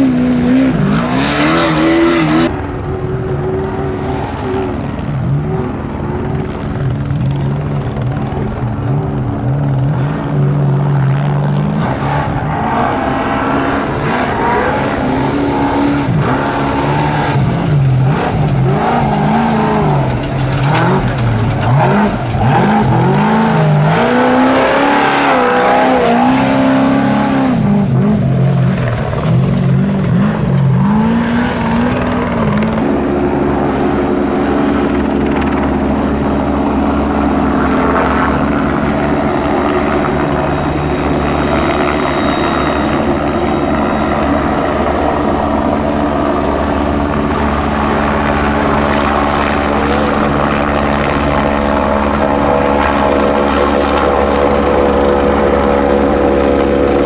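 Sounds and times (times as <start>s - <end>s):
race truck engine revving: 0.0s - 2.6s, 3.6s - 32.9s
helicopter drone: 0.0s - 57.0s.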